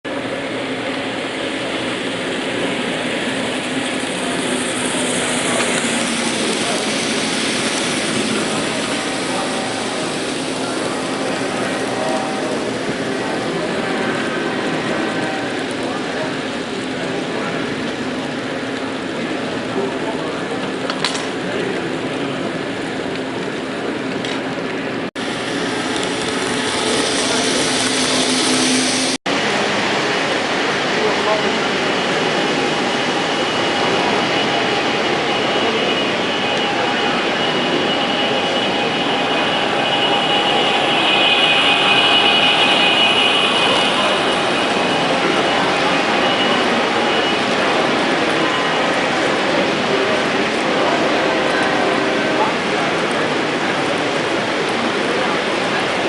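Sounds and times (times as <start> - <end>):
model trains rumbling: 0.0 - 56.0.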